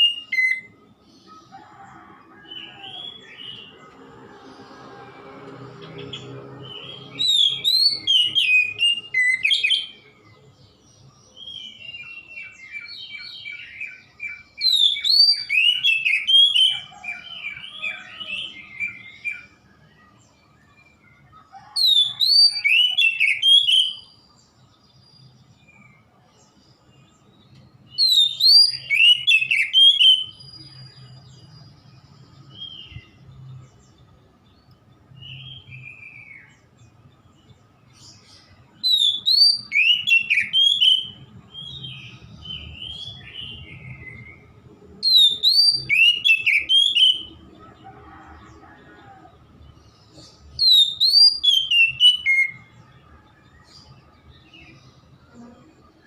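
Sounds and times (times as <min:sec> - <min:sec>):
bird whistles and trills: 0:28.0 - 0:30.5, 0:45.0 - 0:47.3, 0:50.6 - 0:52.6.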